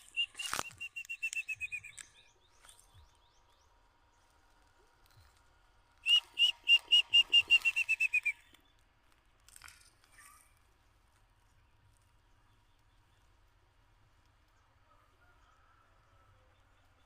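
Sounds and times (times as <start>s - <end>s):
bird whistling notes: 0.0s - 2.3s, 6.0s - 8.5s.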